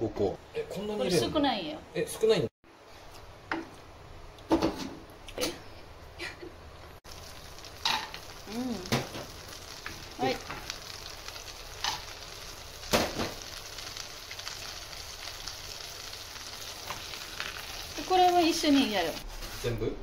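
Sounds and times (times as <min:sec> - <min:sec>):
nuts sizzling in butter: 0:07.0 - 0:19.9
wooden spatula scraping and knocking: 0:18.6 - 0:20.0.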